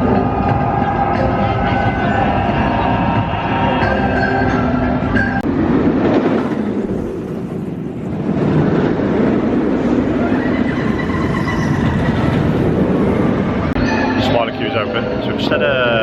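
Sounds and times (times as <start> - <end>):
roller coaster rumble: 0.0 - 16.0
wind rushing over microphone: 5.4 - 13.8.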